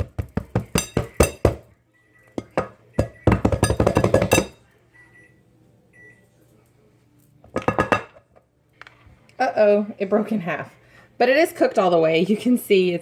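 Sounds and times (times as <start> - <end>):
breakfast maker knocking on plate: 0.0 - 1.7, 2.4 - 4.6, 7.5 - 8.2.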